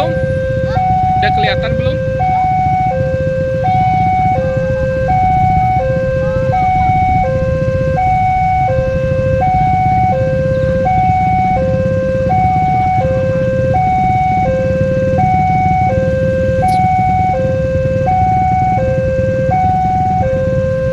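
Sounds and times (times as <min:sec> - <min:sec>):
low rumble: 0:00.0 - 0:18.8
level crossing two-tone alarm: 0:00.0 - 0:20.9.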